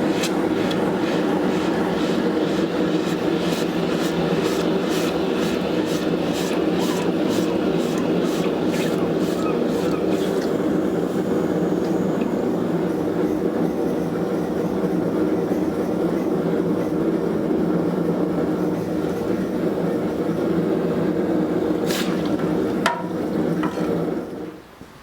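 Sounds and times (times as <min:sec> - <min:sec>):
shop machine running: 0:00.0 - 0:15.0.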